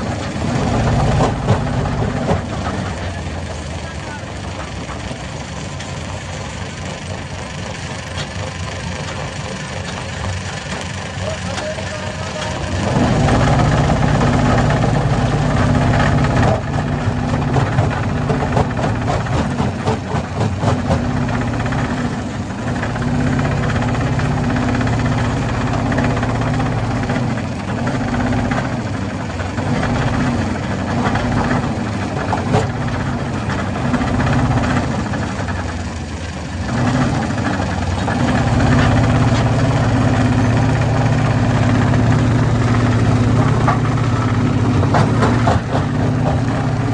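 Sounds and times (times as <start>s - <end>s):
stone crusher droning: 0.0s - 46.9s.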